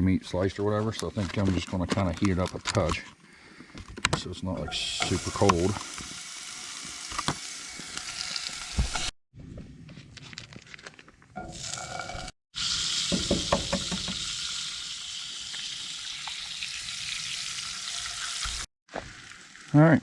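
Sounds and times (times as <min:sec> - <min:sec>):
food sizzling in a skillet: 0:04.9 - 0:09.1, 0:11.4 - 0:19.8.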